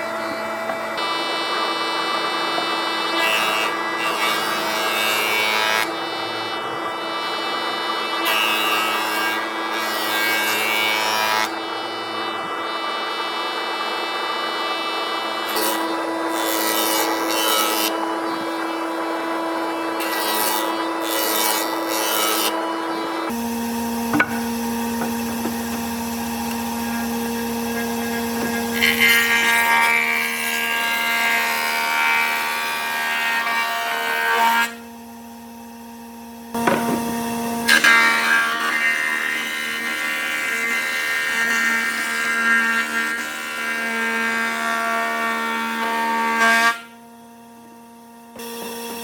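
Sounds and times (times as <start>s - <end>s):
power tool motor whining: 11.0s - 30.6s, 36.5s - 38.0s.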